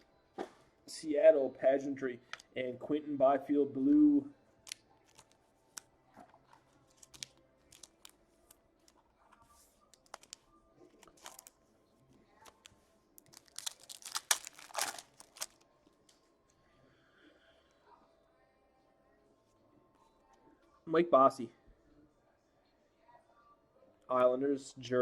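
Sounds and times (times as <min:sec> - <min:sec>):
wrapper crinkling and tearing: 0:06.9 - 0:08.2, 0:09.9 - 0:10.4, 0:11.0 - 0:11.6, 0:12.4 - 0:15.6.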